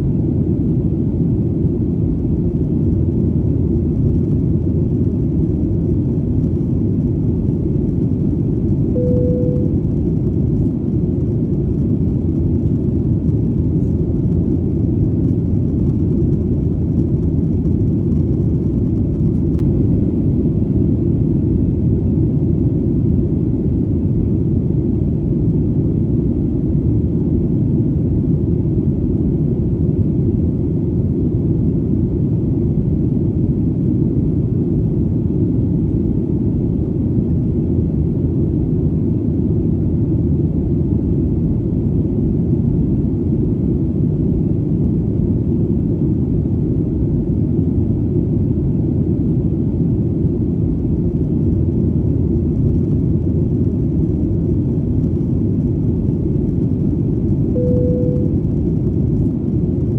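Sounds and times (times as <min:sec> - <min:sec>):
airplane engine rumble: 0:00.0 - 0:59.9
brief tone: 0:08.9 - 0:10.2, 0:57.5 - 0:58.8.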